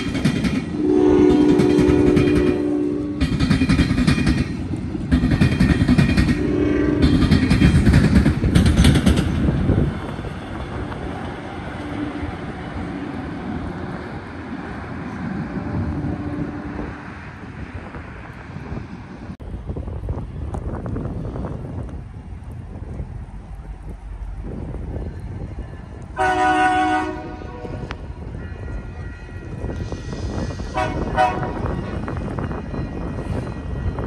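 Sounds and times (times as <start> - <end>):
train rumbling and wheel clatter: 0.0 - 34.0
wind on microphone: 0.0 - 34.0
train horn blast: 0.7 - 3.3, 6.3 - 7.4, 15.7 - 17.0, 26.2 - 32.0.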